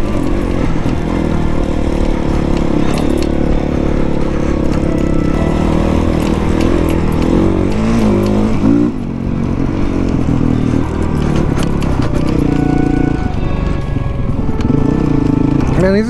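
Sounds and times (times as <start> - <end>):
clicks and rattles over rough ground: 0.0 - 16.0
dirt bike engine revving: 0.0 - 16.0.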